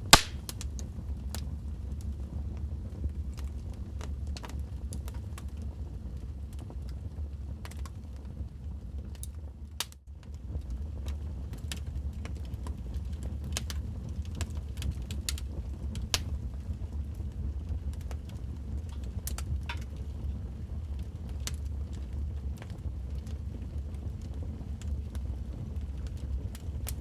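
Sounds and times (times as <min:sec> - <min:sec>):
fire crackling and popping: 0:00.0 - 0:27.0
low rumble of flames: 0:00.0 - 0:27.0.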